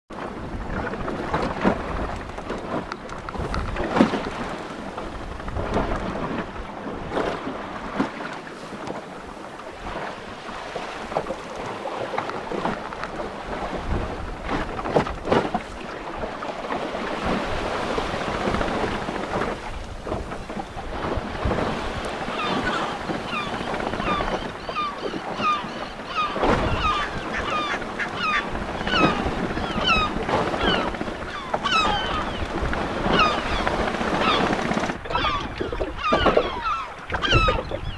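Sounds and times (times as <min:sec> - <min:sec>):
waves slapping hull: 0:00.1 - 0:37.9
wind buffeting microphone: 0:00.1 - 0:37.9
flock of birds calling: 0:22.2 - 0:37.9.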